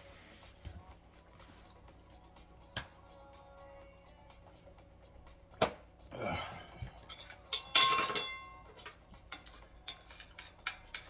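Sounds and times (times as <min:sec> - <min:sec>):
plate and cutlery clattering: 0:07.0 - 0:11.0.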